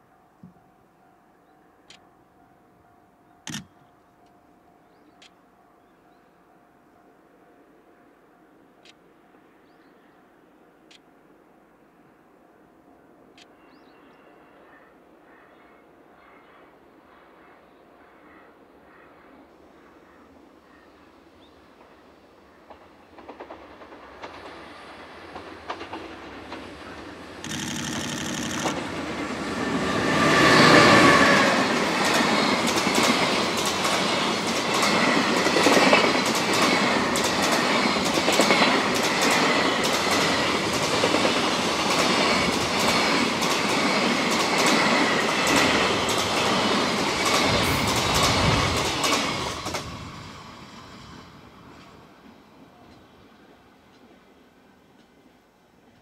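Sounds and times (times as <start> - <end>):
electric locomotive passing: 15.8 - 56.0.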